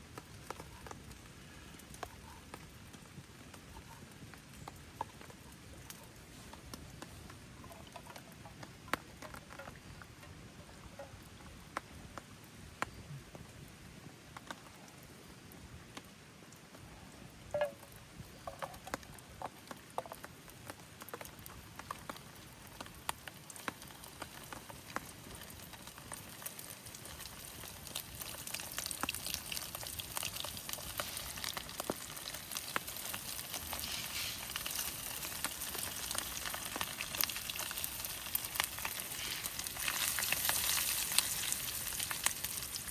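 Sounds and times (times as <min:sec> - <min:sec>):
food sizzling in a pan: 0:23.3 - 0:42.9.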